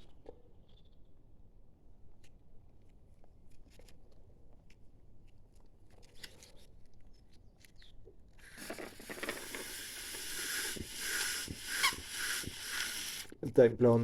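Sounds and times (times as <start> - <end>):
oil sucked through tube: 8.4 - 13.4.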